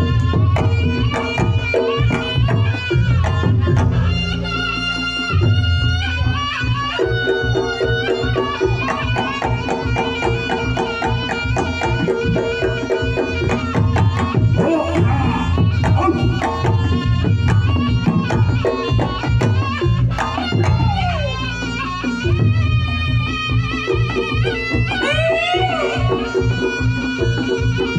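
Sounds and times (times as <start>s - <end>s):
interlocking percussion: 0.0s - 27.9s
wavering reed melody: 0.0s - 27.9s
fast hand drumming: 6.9s - 22.6s.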